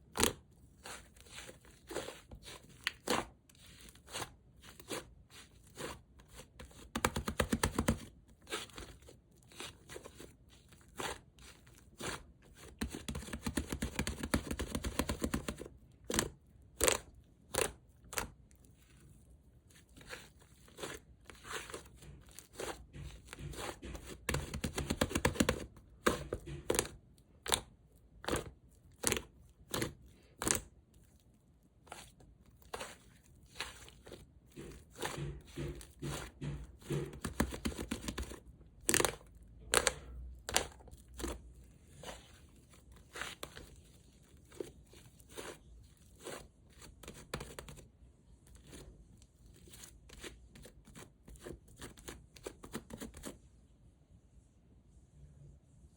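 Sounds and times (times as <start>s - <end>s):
slime squished and stretched: 15.5s - 47.8s.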